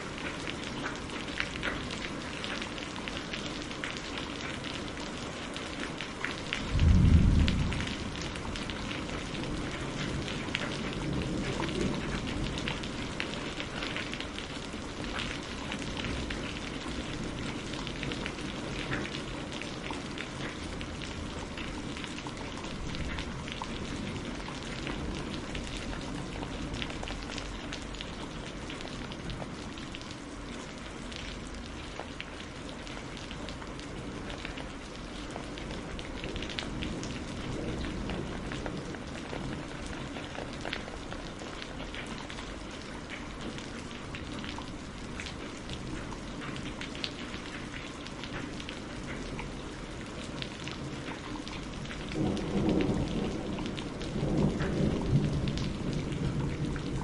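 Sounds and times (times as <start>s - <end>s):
steady rain falling: 0.0s - 57.0s
low rumble of thunder: 6.1s - 29.8s, 32.7s - 42.7s, 48.4s - 57.0s.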